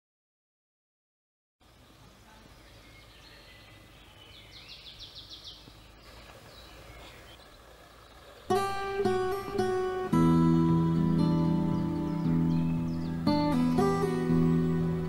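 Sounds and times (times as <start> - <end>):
faint forest ambience: 1.6 - 15.0
songbird trilling and chirping: 1.7 - 10.0, 10.6 - 15.0.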